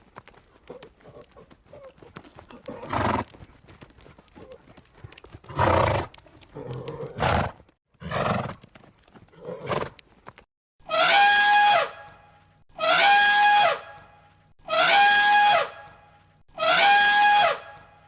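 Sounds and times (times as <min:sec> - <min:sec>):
hooves knocking: 0:00.0 - 0:07.8.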